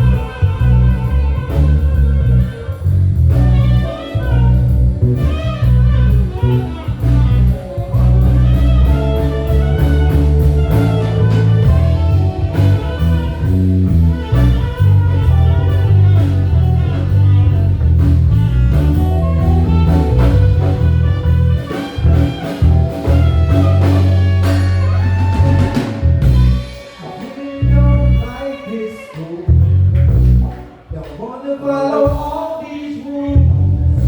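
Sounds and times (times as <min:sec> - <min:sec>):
live blues-jazz band playing: 0:00.0 - 0:34.0.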